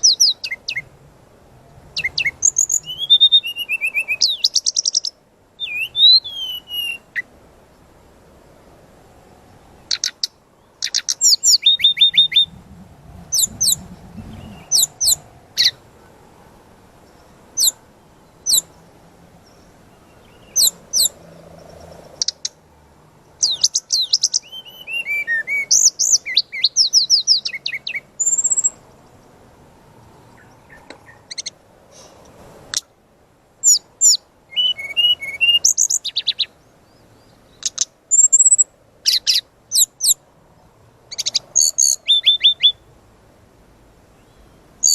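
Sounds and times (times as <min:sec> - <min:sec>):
flycatcher singing: 0:00.0 - 0:00.9, 0:02.0 - 0:07.3, 0:09.8 - 0:12.6, 0:13.3 - 0:15.8, 0:17.0 - 0:18.8, 0:19.4 - 0:22.6, 0:23.4 - 0:29.3, 0:33.6 - 0:40.2, 0:41.1 - 0:42.8, 0:44.2 - 0:44.9.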